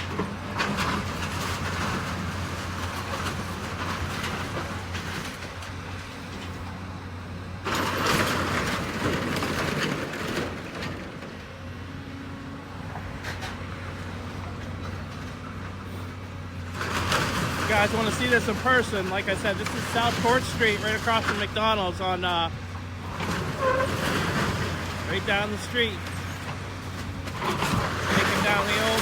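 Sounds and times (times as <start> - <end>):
debris cracking and scraping: 0.0 - 6.5, 7.6 - 11.5, 16.6 - 29.0
debris crashing and rumbling: 0.0 - 11.8, 12.7 - 29.0
demolition machine crunching: 0.0 - 29.0.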